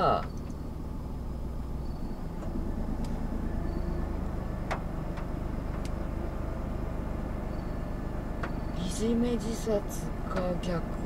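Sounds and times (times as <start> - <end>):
car engine idling: 0.0 - 11.0
faint small clicks: 4.7 - 6.0.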